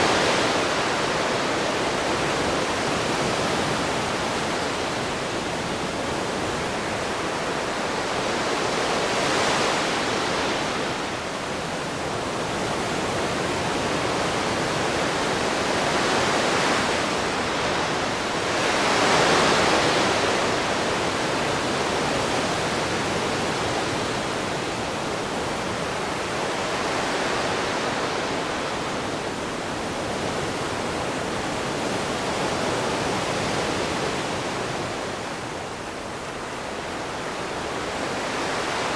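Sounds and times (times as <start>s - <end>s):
ocean waves washing ashore: 0.0s - 38.9s.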